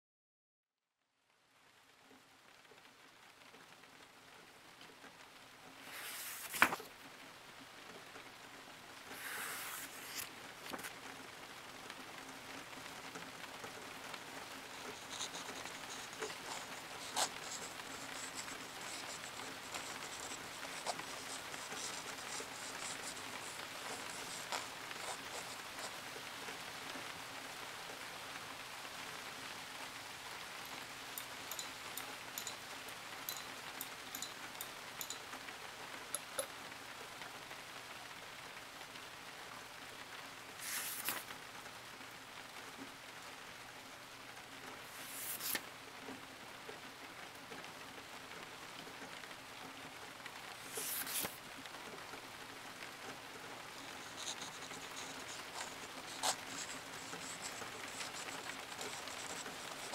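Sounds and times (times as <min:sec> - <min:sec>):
rain pattering: 0:01.3 - 0:05.9, 0:06.8 - 0:09.2, 0:10.3 - 0:40.6, 0:41.2 - 0:44.9, 0:45.6 - 0:50.7, 0:51.4 - 0:59.9.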